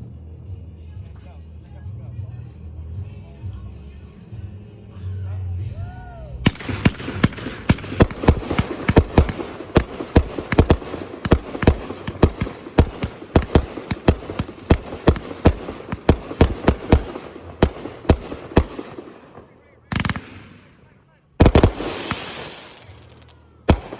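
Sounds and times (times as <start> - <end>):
fireworks bangs: 6.5 - 23.9
fireworks crackling: 6.5 - 23.9.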